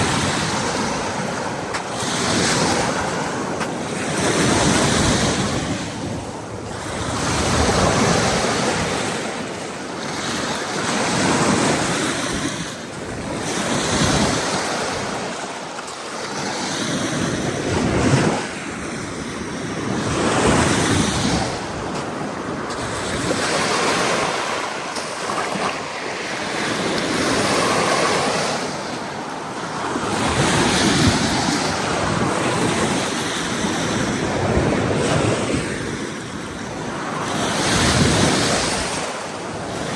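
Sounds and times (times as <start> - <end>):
surf washing onto beach: 0.0 - 39.9
wind buffeting microphone: 17.2 - 39.9.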